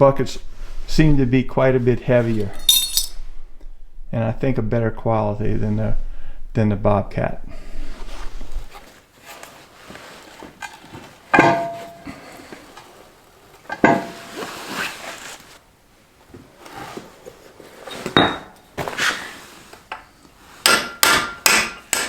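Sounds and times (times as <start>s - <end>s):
metal buckets clanking: 11.3s - 12.6s.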